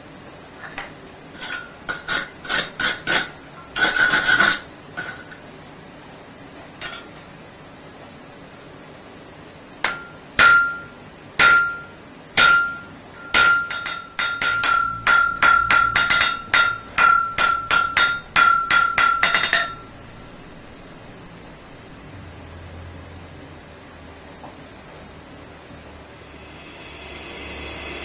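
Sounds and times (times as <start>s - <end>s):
hammer ringing on anvil: 9.8s - 20.0s.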